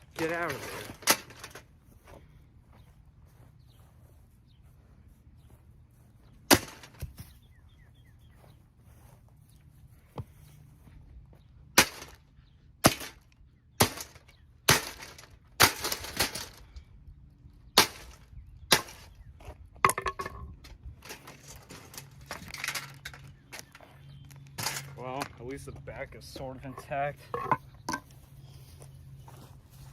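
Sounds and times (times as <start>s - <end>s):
hard blows smashing plastic fan: 6.5s - 7.0s, 11.8s - 12.2s, 12.8s - 13.2s, 13.8s - 16.6s, 17.8s - 19.1s.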